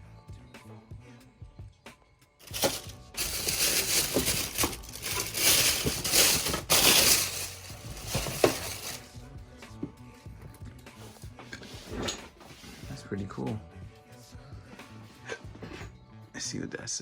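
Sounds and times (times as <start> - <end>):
packaging crinkling and rustling: 2.4 - 9.1.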